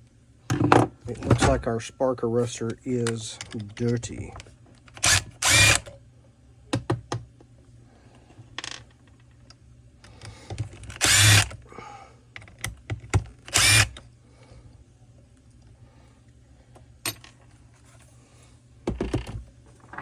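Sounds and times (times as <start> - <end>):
clicks and knocks of parts handled: 3.0 - 6.0, 12.3 - 14.0, 17.0 - 18.1
power tool running: 5.0 - 5.9, 11.0 - 11.6, 13.5 - 14.0.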